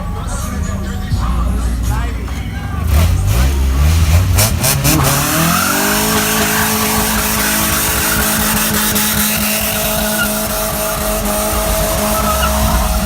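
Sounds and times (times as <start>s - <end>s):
car engine revving high: 0.0s - 13.0s
tyres squealing and hissing: 4.8s - 13.0s.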